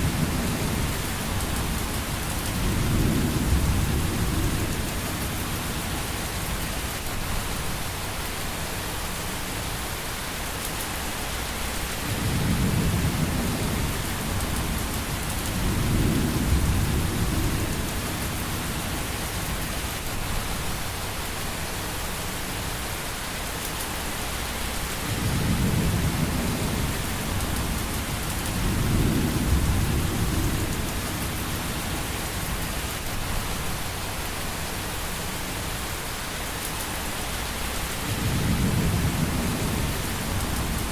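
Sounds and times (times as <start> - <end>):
thunder rumbling: 0.0 - 6.2, 12.0 - 19.6, 25.0 - 33.6, 37.9 - 40.9
steady rain: 0.0 - 40.9.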